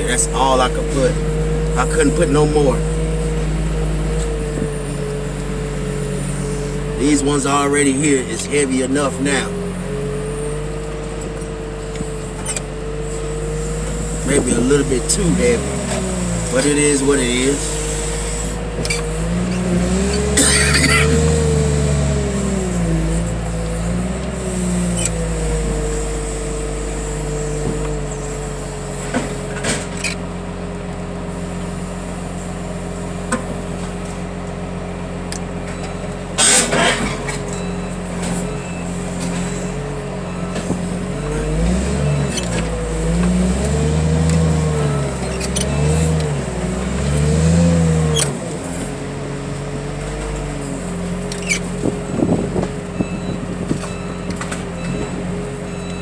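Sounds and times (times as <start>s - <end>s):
heavy machine engine revving: 0.0s - 56.0s
metal clanks and knocks: 35.7s - 38.5s.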